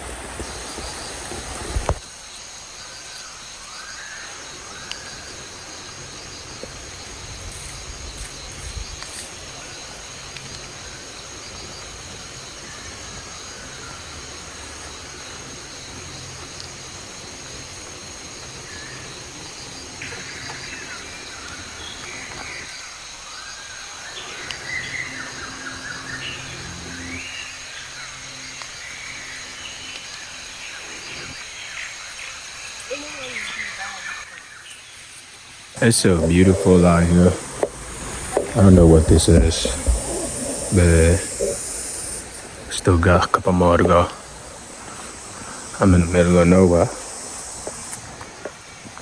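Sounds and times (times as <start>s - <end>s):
birds chirping: 0.0s - 49.0s
high-pitched insect drone: 2.1s - 34.6s, 35.8s - 48.7s
low rumble: 37.4s - 42.8s.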